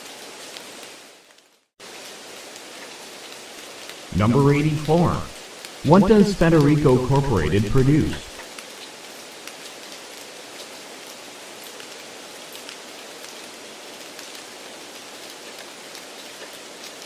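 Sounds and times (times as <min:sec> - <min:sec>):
rain-like hiss: 0:00.0 - 0:04.5, 0:08.3 - 0:17.0.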